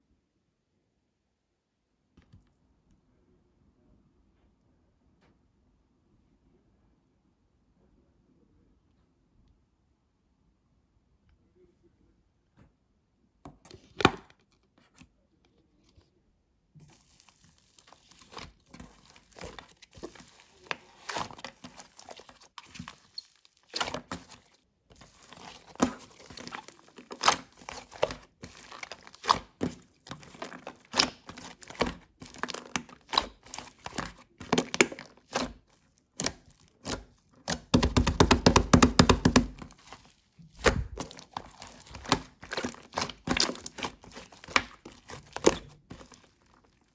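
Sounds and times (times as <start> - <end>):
slime crackling and popping: 17.0 - 46.9.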